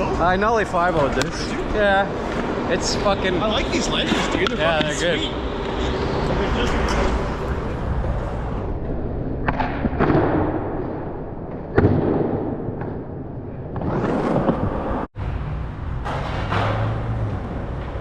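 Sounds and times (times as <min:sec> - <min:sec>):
skateboard wheels rolling on concrete: 0:13.7 - 0:18.0.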